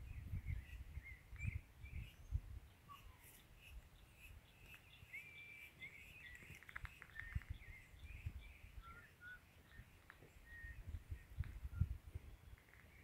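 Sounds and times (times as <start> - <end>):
birdsong whistles and chirps: 0.0 - 13.0.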